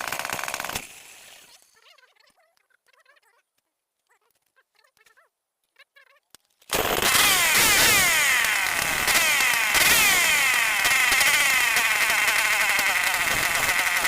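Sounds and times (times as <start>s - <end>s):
two-stroke engine running: 0.0s - 1.5s, 6.7s - 14.0s.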